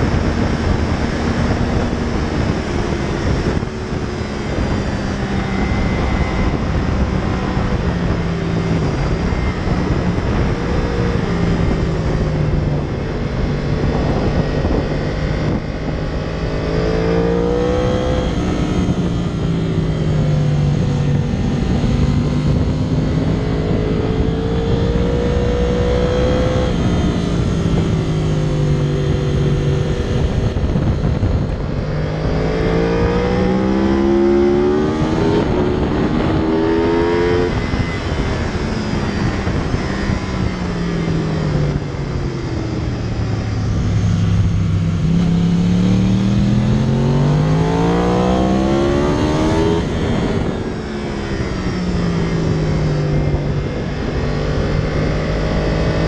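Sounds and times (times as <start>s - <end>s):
motorcycle engine accelerating: 0.0s - 56.0s
wind noise on microphone: 0.0s - 56.0s.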